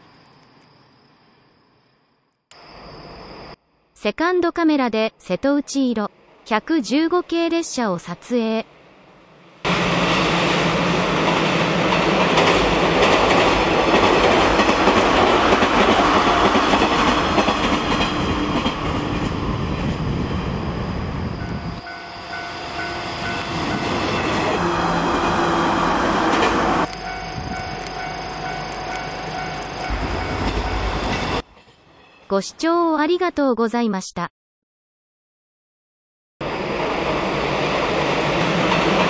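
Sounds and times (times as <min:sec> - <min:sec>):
train wheels clattering over rails: 0:09.7 - 0:19.4, 0:38.4 - 0:39.0.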